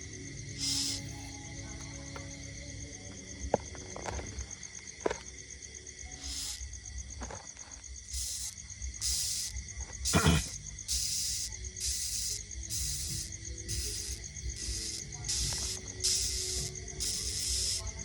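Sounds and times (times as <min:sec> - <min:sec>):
insect trilling: 0:00.0 - 0:18.0
high hiss bursts: 0:00.6 - 0:01.3, 0:06.2 - 0:06.8, 0:08.0 - 0:18.0.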